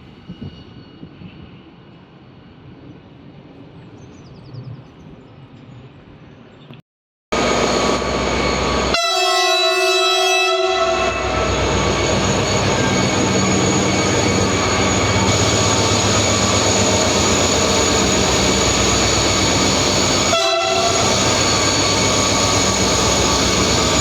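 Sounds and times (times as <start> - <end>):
train rumbling: 7.4 - 24.0
train horn: 8.8 - 15.2, 20.0 - 22.3.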